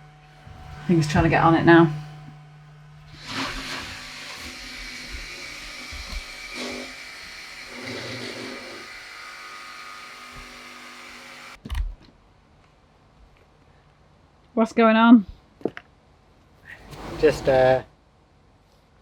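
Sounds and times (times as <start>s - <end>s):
power tool motor whine: 0.1s - 11.6s.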